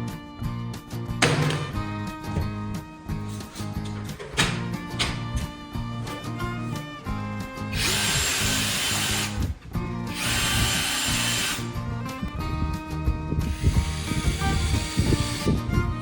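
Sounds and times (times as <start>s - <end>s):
background music: 0.0s - 16.0s
power tool whining: 2.3s - 11.8s, 13.4s - 15.7s.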